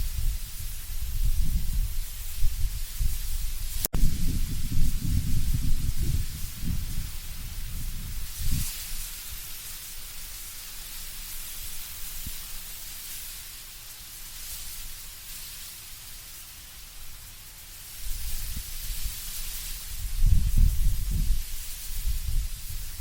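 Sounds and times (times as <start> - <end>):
wind rustling leaves: 0.0 - 23.0
low rumbling gusts: 0.2 - 8.6, 19.9 - 23.0.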